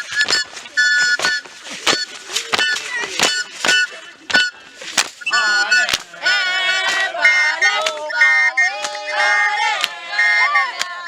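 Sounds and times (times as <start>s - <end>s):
high piping tone: 0.0s - 10.8s
voices singing high sliding pitches: 0.0s - 11.0s.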